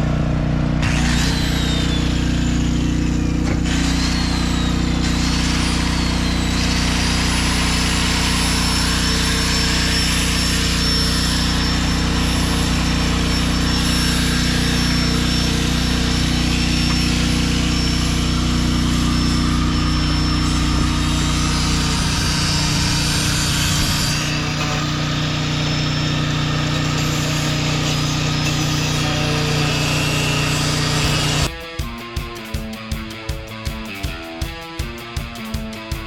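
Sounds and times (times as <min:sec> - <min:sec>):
engine running steadily: 0:00.0 - 0:27.8.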